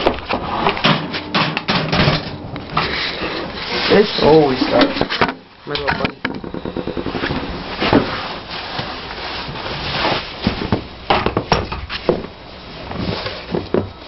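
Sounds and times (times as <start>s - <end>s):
equipment scraping and knocking: 0.0s - 8.3s.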